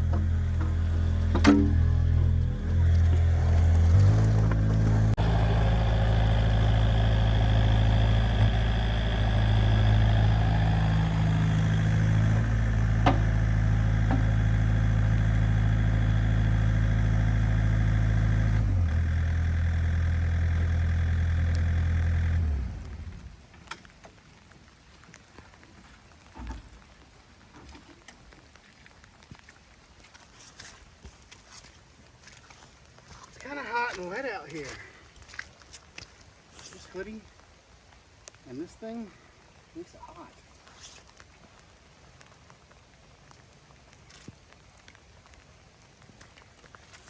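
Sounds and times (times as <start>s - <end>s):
small engine running: 0.0s - 23.4s.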